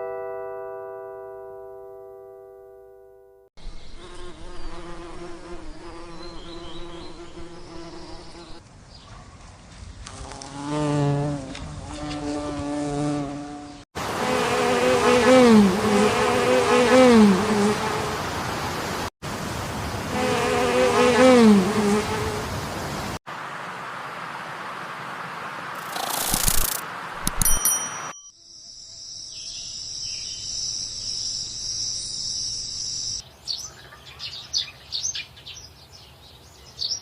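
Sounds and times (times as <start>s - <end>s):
flying insects buzzing: 3.8s - 8.6s, 10.2s - 23.2s, 25.3s - 26.9s.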